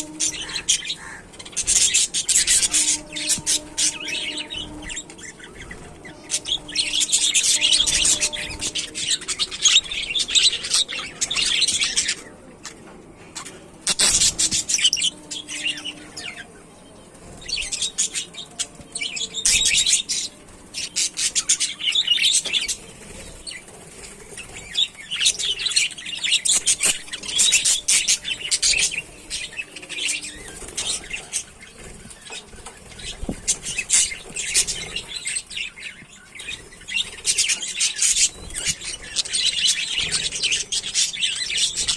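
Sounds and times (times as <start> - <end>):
budgerigars chattering and chirping: 0.0 - 5.0, 13.4 - 16.5.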